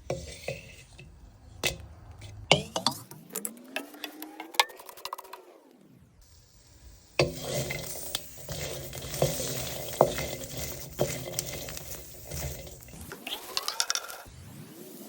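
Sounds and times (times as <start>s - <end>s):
food frying in a pan: 6.3s - 14.2s.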